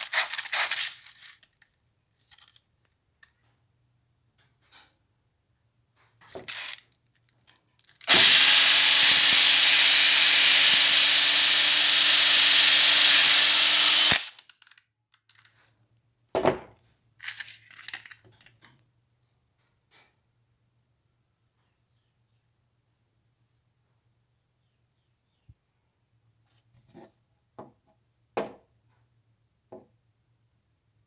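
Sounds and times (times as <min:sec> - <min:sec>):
workshop tool hissing rush: 0:08.1 - 0:14.3.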